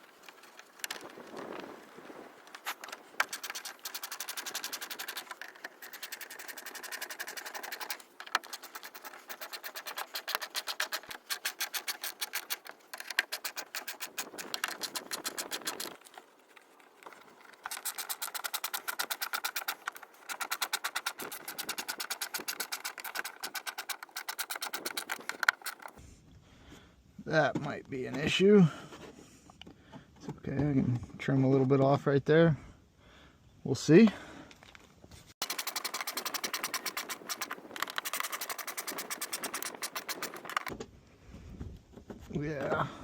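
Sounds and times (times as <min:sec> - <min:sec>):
fastening tool clicking rapidly: 0:02.7 - 0:16.2, 0:17.1 - 0:26.0, 0:35.4 - 0:40.7.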